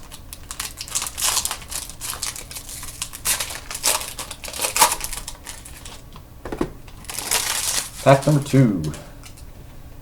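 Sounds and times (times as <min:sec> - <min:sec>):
wrapper crinkling and tearing: 0:00.0 - 0:06.1, 0:06.9 - 0:08.6.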